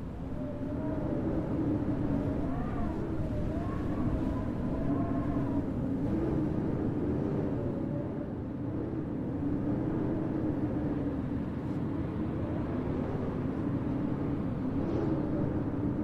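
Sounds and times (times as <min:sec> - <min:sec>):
blizzard wind rumbling: 0:00.0 - 0:16.0.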